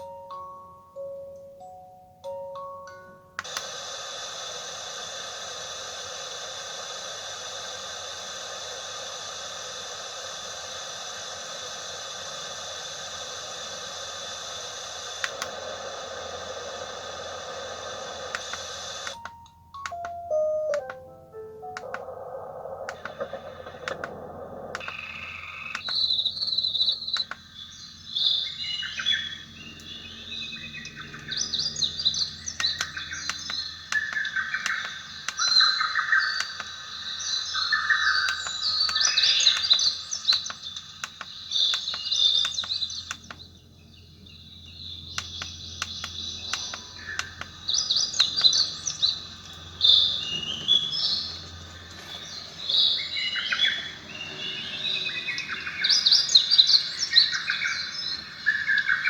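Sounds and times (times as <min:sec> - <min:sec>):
recorded birdsong chirps and trills: 0:22.2 - 0:59.0.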